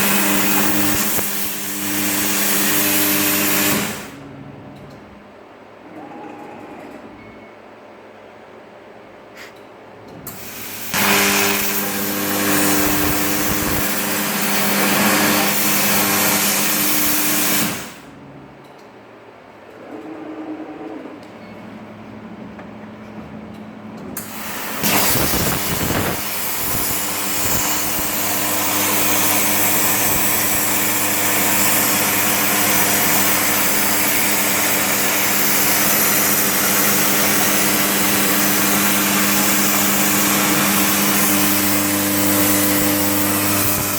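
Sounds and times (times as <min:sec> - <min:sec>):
plasma cutter arc hissing: 0:00.0 - 0:04.1, 0:10.3 - 0:18.0, 0:24.2 - 0:43.9.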